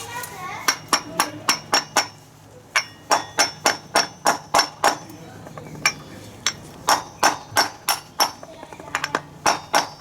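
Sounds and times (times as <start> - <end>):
hammer striking metal: 2.8 - 5.1, 6.9 - 8.4.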